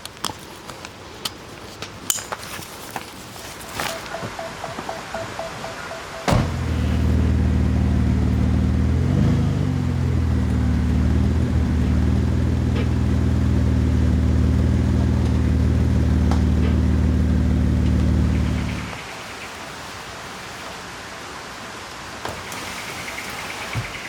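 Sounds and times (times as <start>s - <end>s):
low engine hum: 6.3s - 19.0s.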